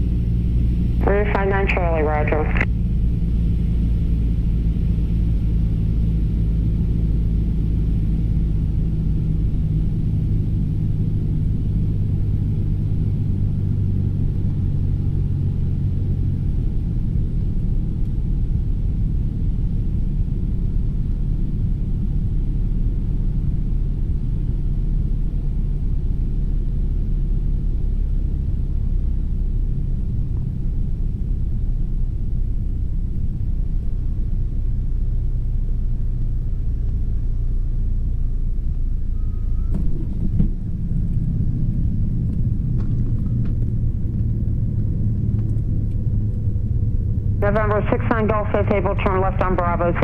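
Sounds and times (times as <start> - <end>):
aircraft engine drone: 0.0 - 50.0
cockpit rumble: 0.0 - 50.0.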